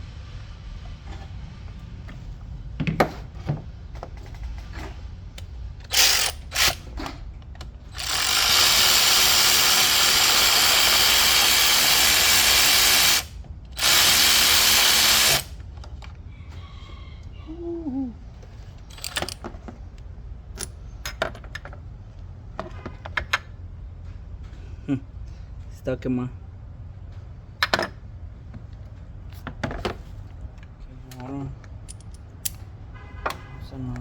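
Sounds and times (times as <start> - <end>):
cordless power driver spinning: 7.9 - 15.5.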